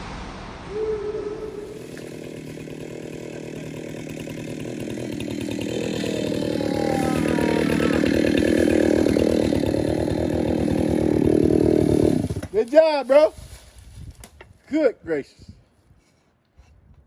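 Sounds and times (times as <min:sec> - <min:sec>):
chainsaw running: 0:01.8 - 0:13.2.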